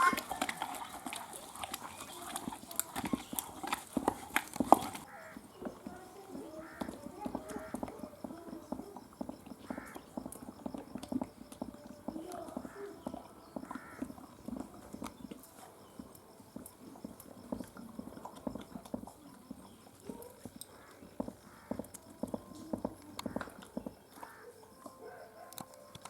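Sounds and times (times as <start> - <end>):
knocks and taps: 21.2 - 24.0.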